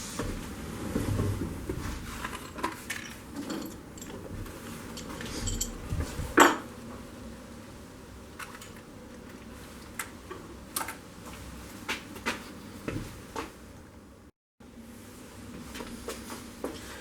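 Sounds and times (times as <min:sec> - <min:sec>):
metal tools clinking: 0:05.0 - 0:05.8.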